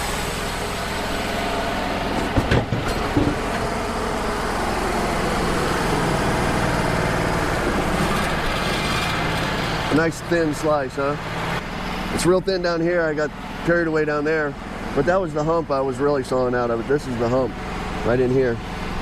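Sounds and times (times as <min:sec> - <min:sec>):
sawmill cutting a log: 0:00.0 - 0:19.0.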